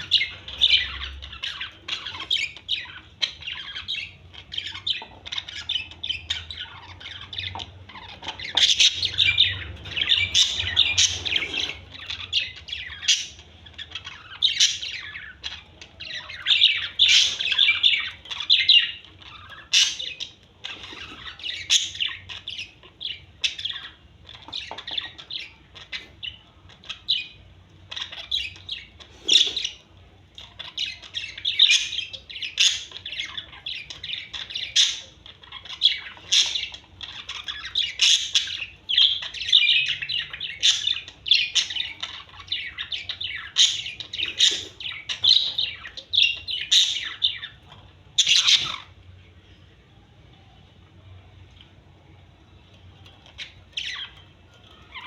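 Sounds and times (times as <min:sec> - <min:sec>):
parrots chirping and squawking: 0:00.0 - 0:55.0.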